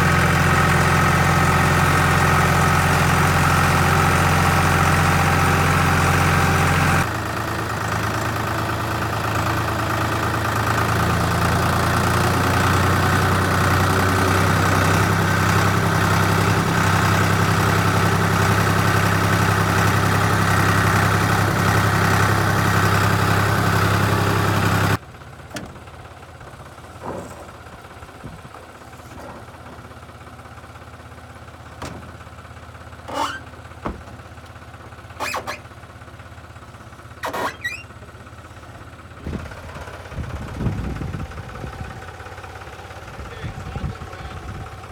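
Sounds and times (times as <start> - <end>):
tractor diesel engine running: 0.0 - 44.9
short squeaks: 33.0 - 34.0, 35.1 - 35.8, 37.2 - 38.1.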